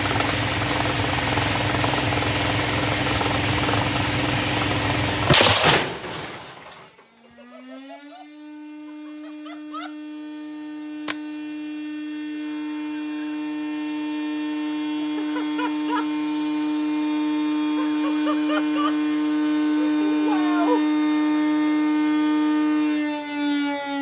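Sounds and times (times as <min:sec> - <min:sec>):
washing machine spinning: 0:00.0 - 0:05.3.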